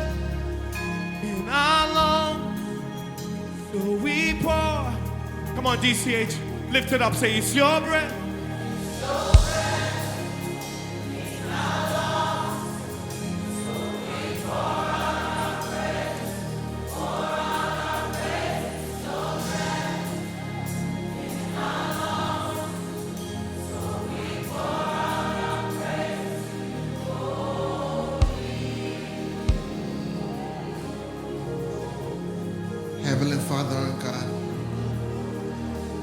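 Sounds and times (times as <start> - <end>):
choir singing: 0.0 - 36.0
keyboard and bass notes: 8.1 - 13.6, 27.0 - 32.9
sharp thump: 9.4 - 9.8.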